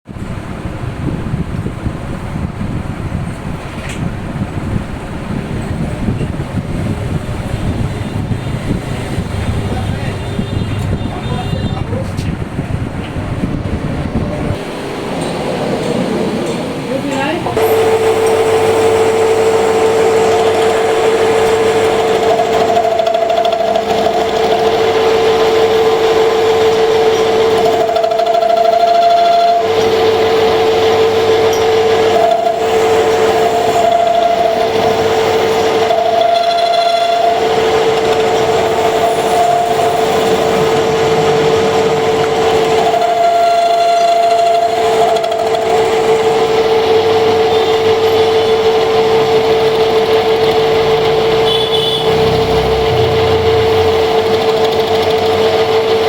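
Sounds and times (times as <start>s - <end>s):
metal lathe humming: 4.1s - 56.0s
ringing tone of cutting tool: 17.5s - 56.0s.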